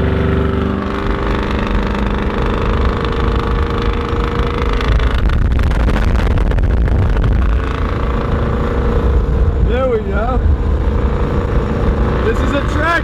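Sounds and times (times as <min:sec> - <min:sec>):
road noise: 0:00.0 - 0:13.0
vehicle engine running: 0:00.0 - 0:13.0.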